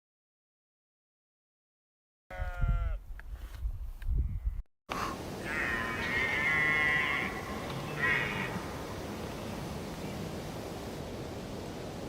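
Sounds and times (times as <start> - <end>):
animal call: 5.4 - 9.0.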